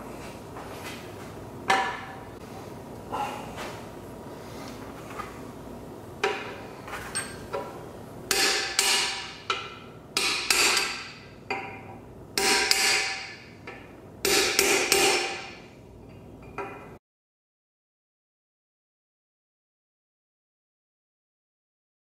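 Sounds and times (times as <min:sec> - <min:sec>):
hammer striking metal: 0:08.3 - 0:15.6.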